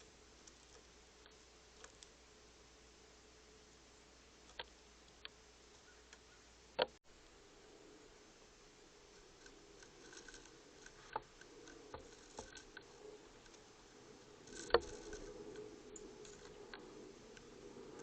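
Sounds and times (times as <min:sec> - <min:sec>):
birds pecking and landing: 0:08.8 - 0:18.0.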